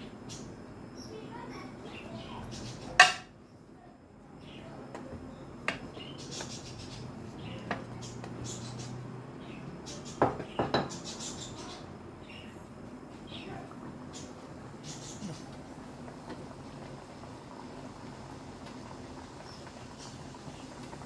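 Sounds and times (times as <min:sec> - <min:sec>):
metal utensils knocking on pan: 0:03.0 - 0:03.3, 0:10.2 - 0:11.0.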